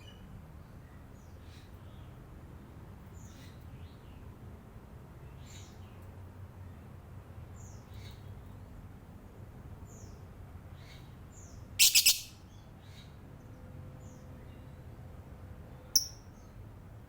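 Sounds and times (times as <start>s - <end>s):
lovebird chirping: 11.8s - 12.4s, 16.0s - 16.5s
shrill bird calls: 11.8s - 12.4s.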